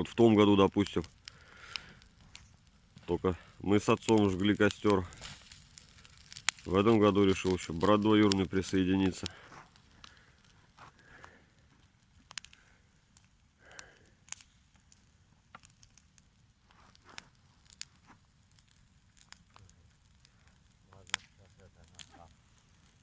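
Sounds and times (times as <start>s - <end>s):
bonfire crackling and popping: 0.0s - 23.0s.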